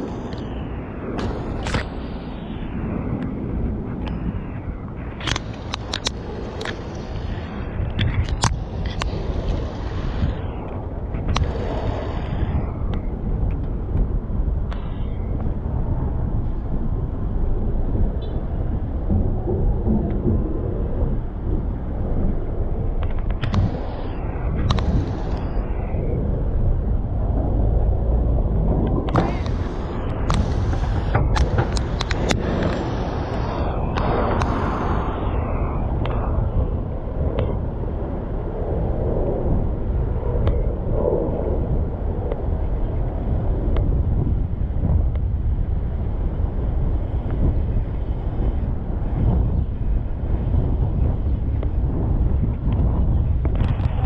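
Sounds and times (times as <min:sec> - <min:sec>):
bicycle road noise: 0:00.0 - 0:54.0
wind rumble on microphone: 0:00.0 - 0:54.0
faint clicks: 0:05.2 - 0:09.3, 0:23.0 - 0:25.6.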